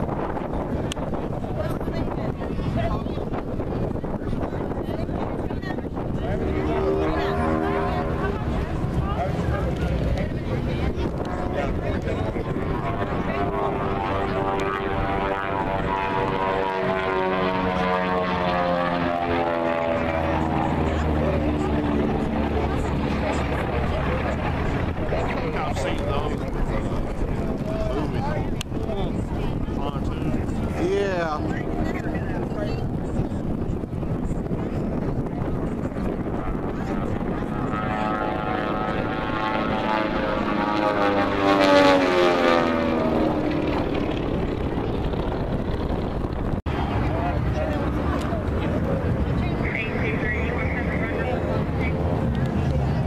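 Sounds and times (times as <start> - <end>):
airplane flying past: 0.0 - 53.0
propeller aircraft drone: 0.0 - 53.0.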